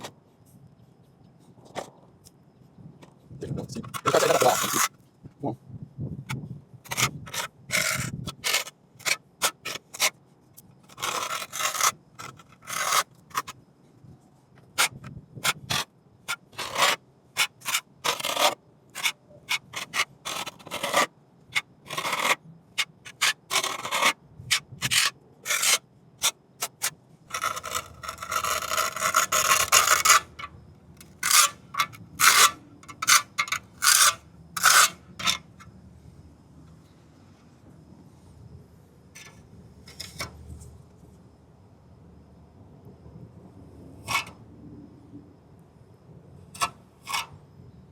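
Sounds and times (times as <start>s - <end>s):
trowel scraping wet cement: 3.8s - 5.0s, 6.9s - 13.5s, 14.8s - 35.5s.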